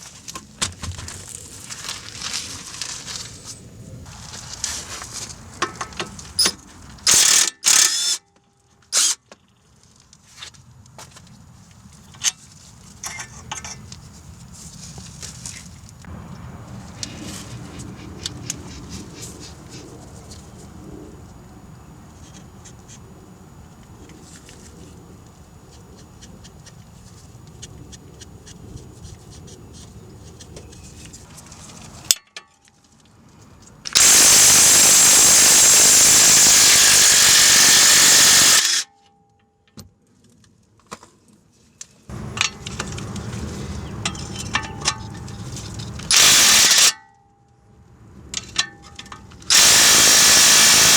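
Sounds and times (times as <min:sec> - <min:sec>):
metallic tool clicks and clanks: 0:05.6 - 0:08.3
loud steady rush of noise: 0:33.9 - 0:38.8, 0:42.1 - 0:46.9, 0:49.5 - 0:50.9.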